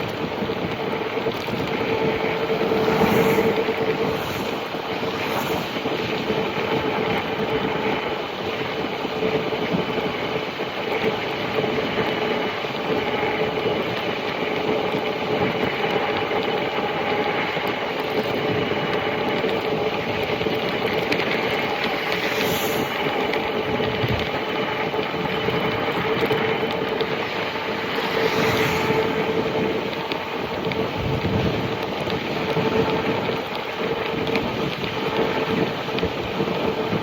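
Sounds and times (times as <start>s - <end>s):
tyre noise: 0.1s - 8.0s, 18.5s - 33.2s
wind rushing: 0.2s - 7.9s, 19.7s - 31.8s.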